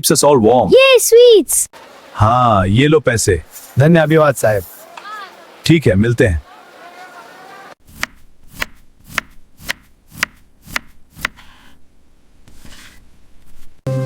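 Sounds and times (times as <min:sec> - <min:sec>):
knife chopping on cutting board: 0:07.9 - 0:11.8, 0:12.5 - 0:13.0.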